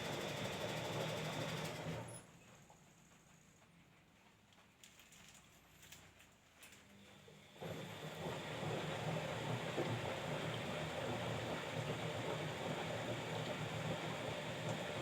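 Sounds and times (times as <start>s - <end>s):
washing machine running: 0.0s - 2.2s, 7.4s - 15.0s.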